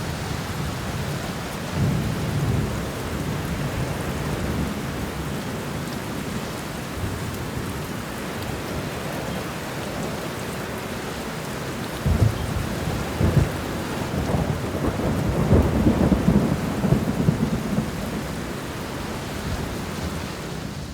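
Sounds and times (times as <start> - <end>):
heavy rain falling: 0.0 - 20.9
thunder rumbling: 12.0 - 20.8.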